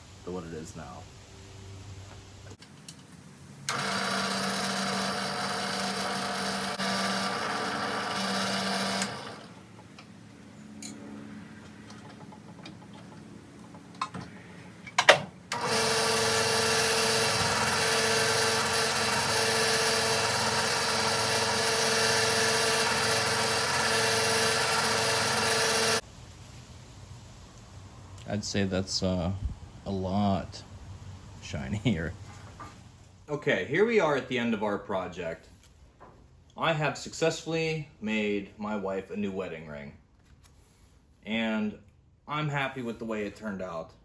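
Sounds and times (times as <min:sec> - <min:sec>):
drill press motor running: 0:03.7 - 0:09.7, 0:15.5 - 0:26.0.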